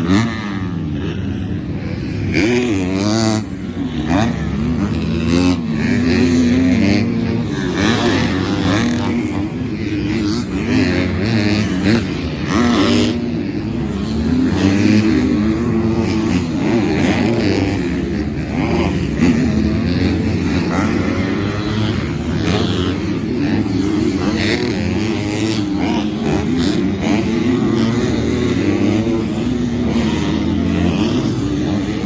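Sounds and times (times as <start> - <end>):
motocross bike engines revving: 0.0 - 32.0.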